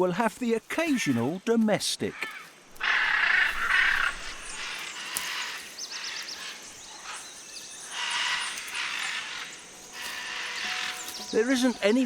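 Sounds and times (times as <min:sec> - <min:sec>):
macaws squawking harshly: 0:02.1 - 0:12.0.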